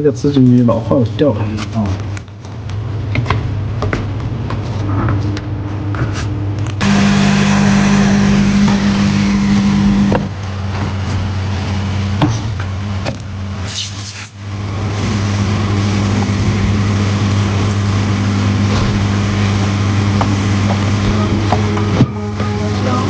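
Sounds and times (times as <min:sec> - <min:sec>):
machine hum with hiss: 0:06.1 - 0:23.0.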